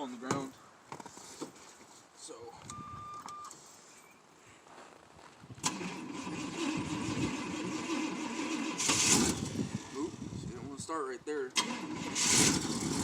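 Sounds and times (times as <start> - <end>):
starter cranking engine: 5.6 - 10.3, 11.5 - 13.0.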